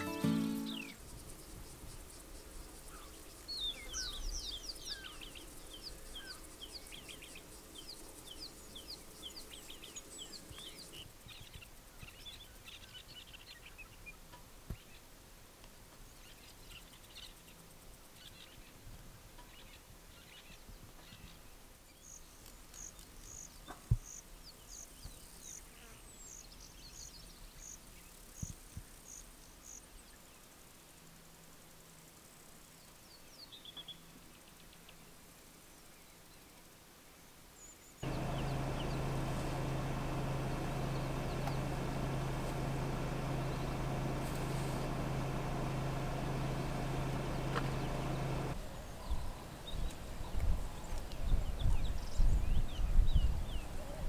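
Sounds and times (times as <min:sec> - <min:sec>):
short high bird notes: 0:00.0 - 0:01.0
wild birds calling: 0:38.0 - 0:49.0.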